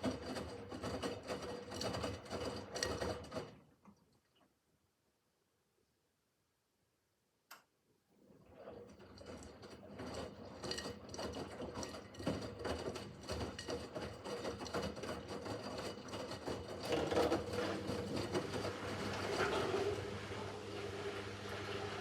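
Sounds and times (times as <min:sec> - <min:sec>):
washing machine motor hum: 0:00.0 - 0:03.7, 0:08.2 - 0:22.0
small clicks and rattles: 0:08.6 - 0:18.6.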